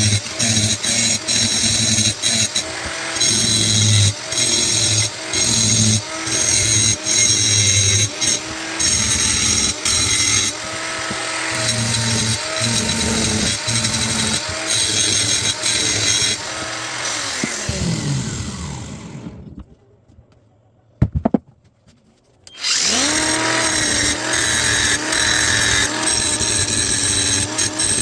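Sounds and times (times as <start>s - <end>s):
grinder grinding metal: 0.0s - 19.6s, 22.5s - 28.0s
grinder spinning up: 0.0s - 19.6s, 22.5s - 28.0s
grinder whine winding down: 15.5s - 19.6s, 22.5s - 28.0s
sharp knocks: 21.0s - 21.6s.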